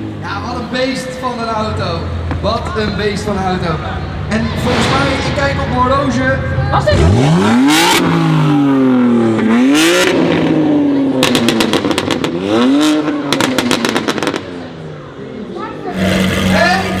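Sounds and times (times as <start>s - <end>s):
car engine revving: 3.2s - 17.0s
exhaust pops and crackles: 11.2s - 14.7s.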